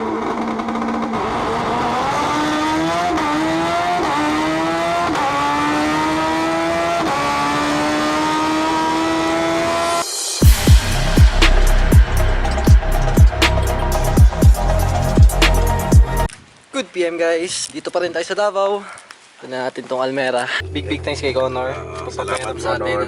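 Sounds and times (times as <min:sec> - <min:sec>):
race car engine accelerating: 0:00.0 - 0:16.3
electronic music with heavy bass: 0:09.5 - 0:16.3.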